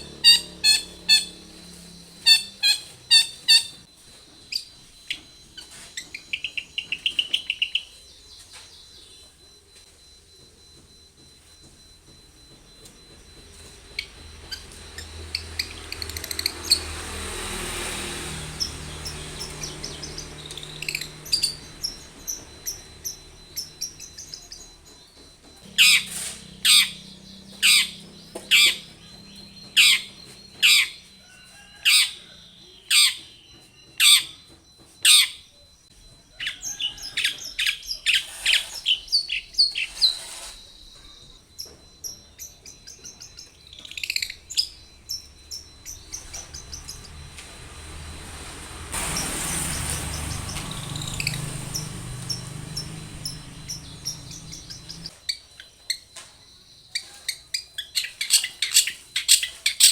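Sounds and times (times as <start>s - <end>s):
loud harsh bird calls: 25.7s - 31.1s
bird scratchy chatter: 25.8s - 29.0s, 37.1s - 41.3s.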